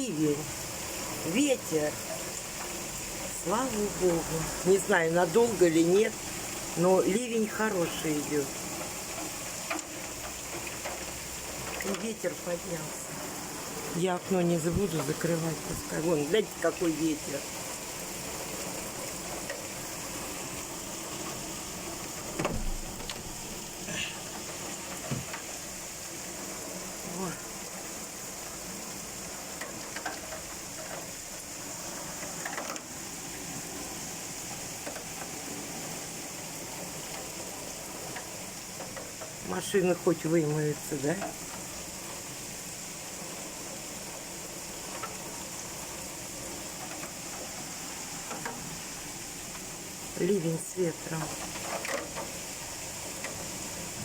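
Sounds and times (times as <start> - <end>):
heavy rain pouring: 0.0 - 54.0
raindrops ticking nearby: 0.0 - 54.0
short thump: 22.4 - 23.3.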